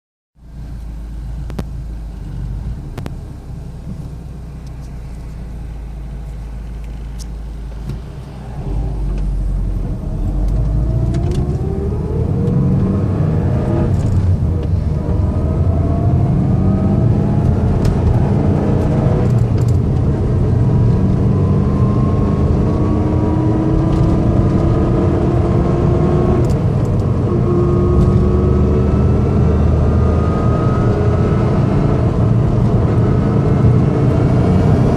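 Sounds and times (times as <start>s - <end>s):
car engine rumble: 0.4s - 34.9s
gear whine: 6.6s - 12.6s.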